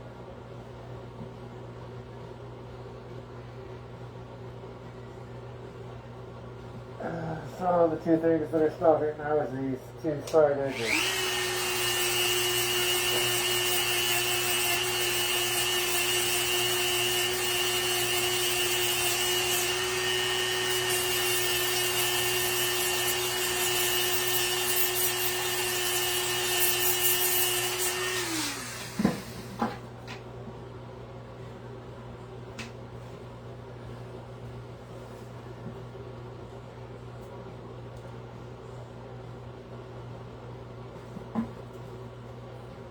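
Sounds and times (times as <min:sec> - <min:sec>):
rotary tool whining: 0:10.7 - 0:29.7.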